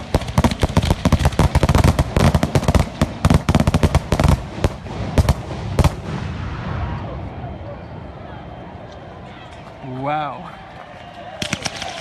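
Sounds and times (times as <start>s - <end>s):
fireworks bangs and crackles: 0.0s - 7.5s, 11.4s - 12.0s.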